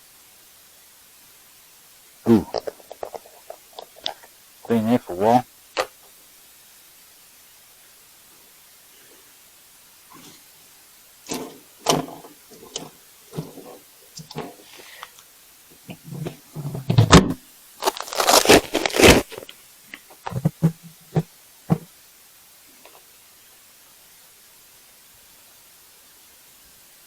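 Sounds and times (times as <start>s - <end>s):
loud scraping and rustling: 17.8s - 19.5s.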